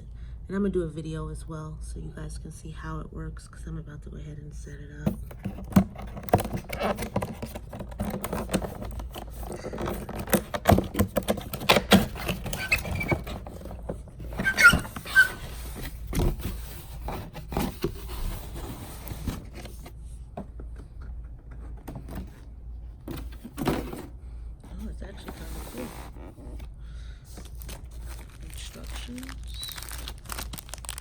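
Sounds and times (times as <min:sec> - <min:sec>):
cardboard box being opened: 0:05.1 - 0:20.0, 0:27.4 - 0:31.0.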